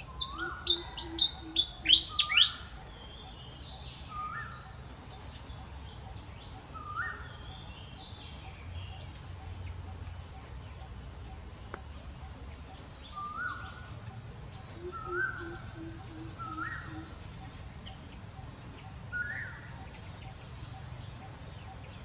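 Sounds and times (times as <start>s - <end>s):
rising whistled bird calls: 0.0s - 2.7s, 14.8s - 17.5s
low bird hoots: 0.0s - 3.4s, 12.2s - 18.0s.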